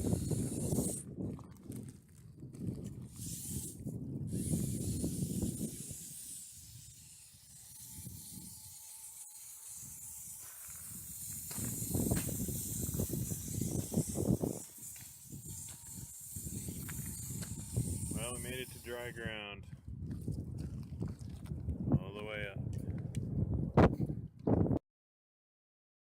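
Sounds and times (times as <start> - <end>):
wind buffeting the microphone: 0.0 - 24.8
faint steady whine: 3.0 - 19.3
hiss of flowing water: 4.3 - 19.1.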